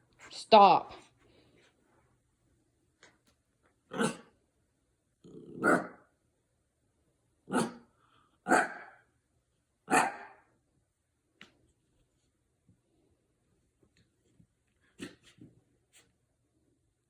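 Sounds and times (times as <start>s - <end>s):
dog barking: 3.9s - 4.3s, 5.6s - 6.0s, 7.5s - 9.0s, 9.9s - 10.5s.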